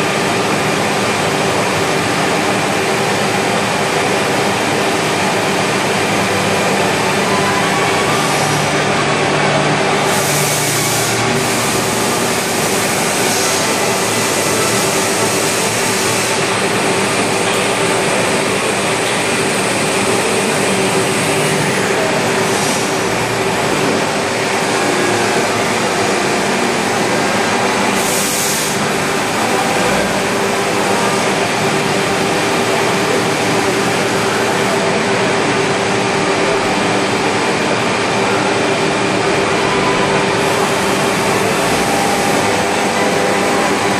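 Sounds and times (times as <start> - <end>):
machining and extraction noise: 39.0 - 43.9.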